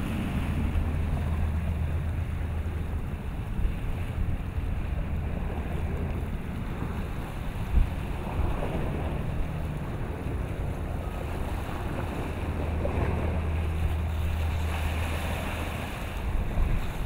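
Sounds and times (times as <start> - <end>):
choppy water: 0.0 - 17.0
wind rumbling on microphone: 0.0 - 17.0.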